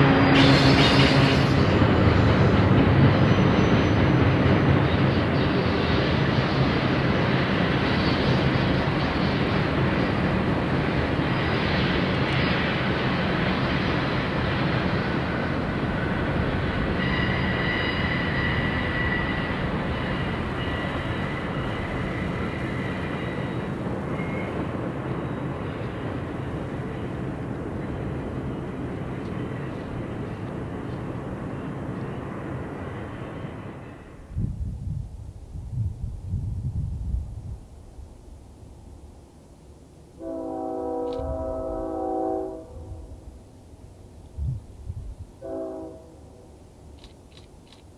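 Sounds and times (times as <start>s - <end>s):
high steady squeal: 0.0s - 6.6s, 16.0s - 25.8s
freight train wheels rumbling: 0.0s - 47.9s.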